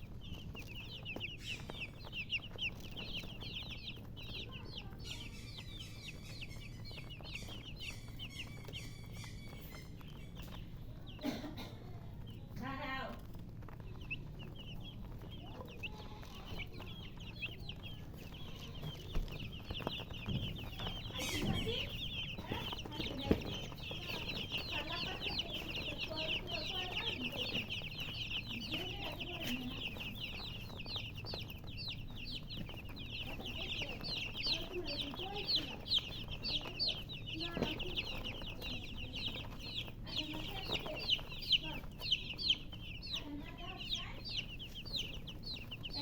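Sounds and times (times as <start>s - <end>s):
baby chicks peeping: 0.0s - 46.0s
hen clucking: 12.5s - 46.0s.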